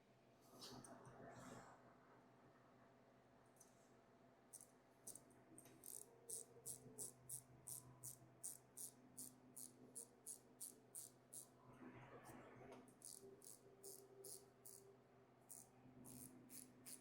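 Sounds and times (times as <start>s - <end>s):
ratchet wrench clicking: 4.6s - 5.2s, 5.8s - 11.5s, 13.0s - 14.8s, 15.5s - 17.0s.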